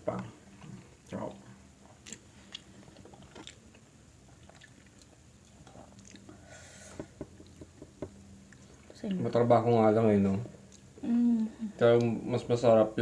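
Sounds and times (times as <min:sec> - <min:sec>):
faint chewing and mouth sounds: 0:00.1 - 0:09.4, 0:10.3 - 0:11.0.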